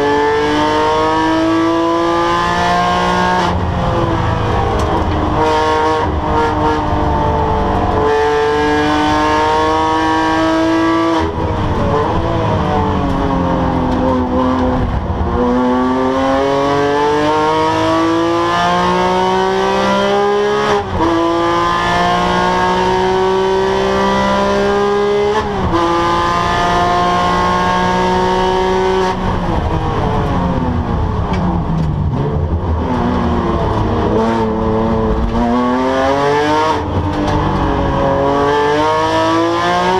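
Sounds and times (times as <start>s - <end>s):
racing car engine accelerating: 0.0s - 39.9s.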